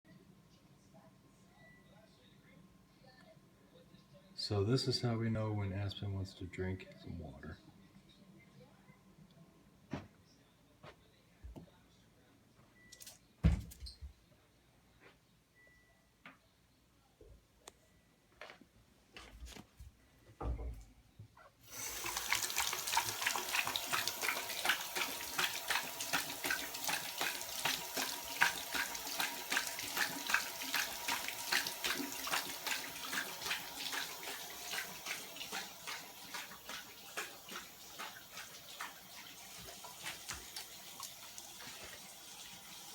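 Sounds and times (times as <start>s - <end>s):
faucet water running: 21.6s - 42.9s
dog lapping water: 22.0s - 42.2s.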